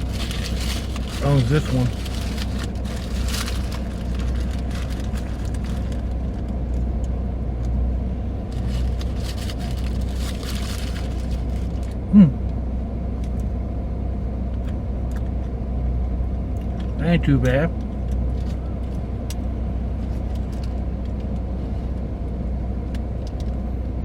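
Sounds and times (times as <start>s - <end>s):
faint clicks and rustles: 0.0s - 7.8s
car engine idling: 0.0s - 24.0s
person humming: 12.1s - 12.4s.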